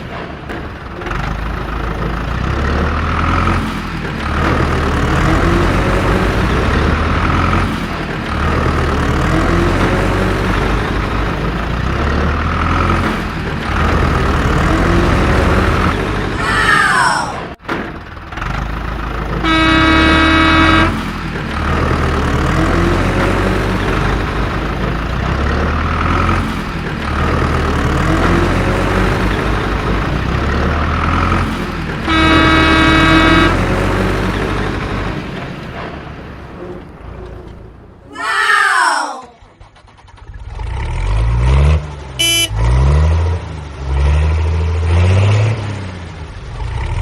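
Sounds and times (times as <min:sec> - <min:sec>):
cartoon engine rumble: 0:14.0 - 0:17.6, 0:19.4 - 0:21.0
short falling cry: 0:16.4 - 0:17.6, 0:38.1 - 0:39.6
cartoon horn honks: 0:19.4 - 0:21.0, 0:32.1 - 0:33.7, 0:42.2 - 0:42.7.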